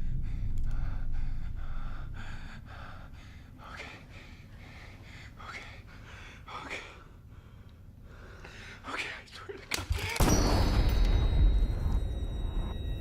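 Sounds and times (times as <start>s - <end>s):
low rumble: 0.0s - 3.8s, 10.6s - 13.0s
man panting: 0.2s - 8.9s.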